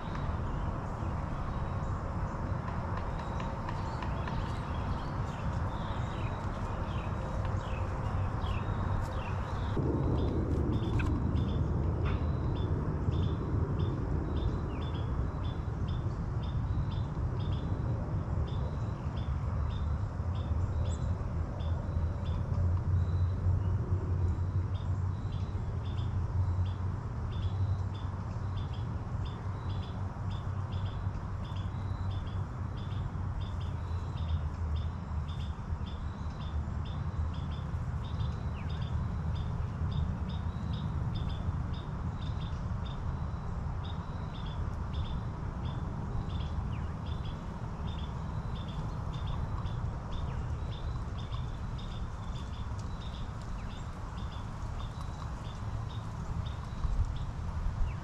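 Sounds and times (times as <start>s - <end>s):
low background rumble: 3.3s - 25.8s.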